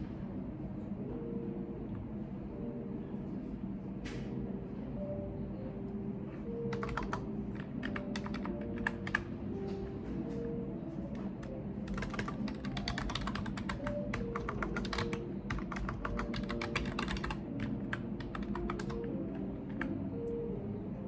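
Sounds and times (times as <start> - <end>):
typing on computer keyboard: 6.7 - 9.3, 11.8 - 20.0.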